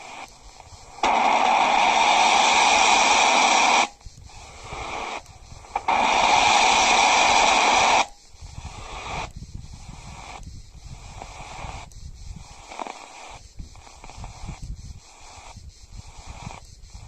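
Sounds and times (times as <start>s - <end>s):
radio crackling noise: 0.0s - 8.2s
radio static hiss: 0.0s - 17.0s.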